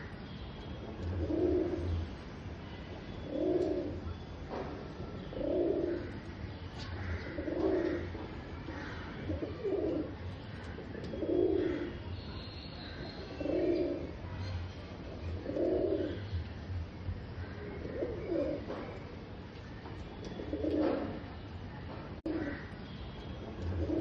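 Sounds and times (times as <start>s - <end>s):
pigeon cooing: 1.1s - 2.0s, 3.3s - 4.0s, 5.3s - 6.2s, 7.2s - 8.2s, 9.2s - 12.0s, 13.3s - 14.2s, 15.3s - 16.3s, 17.8s - 18.8s, 20.2s - 21.2s, 23.7s - 24.0s.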